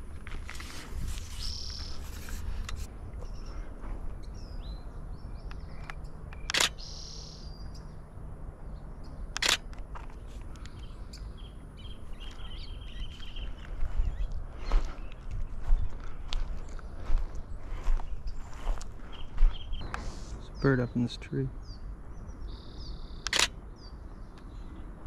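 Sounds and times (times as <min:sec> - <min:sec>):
high bird calls: 0:00.7 - 0:08.0, 0:08.7 - 0:24.8
sharp clicks: 0:05.4 - 0:06.9, 0:09.3 - 0:11.3, 0:23.2 - 0:23.6.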